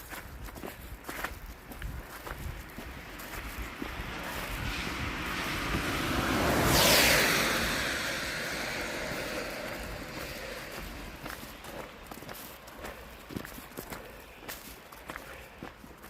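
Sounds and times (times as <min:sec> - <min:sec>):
car driving past: 0:03.0 - 0:12.2.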